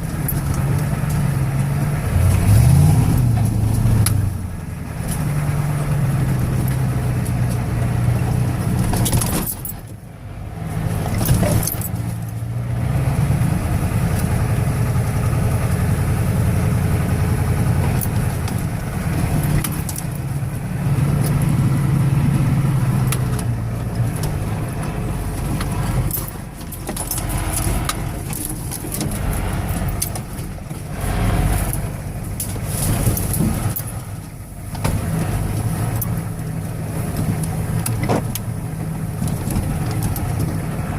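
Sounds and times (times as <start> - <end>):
diesel truck engine running: 0.0 - 40.9
clicking and jingling rattles: 8.7 - 10.0, 11.0 - 12.4, 23.0 - 30.9, 37.0 - 40.7.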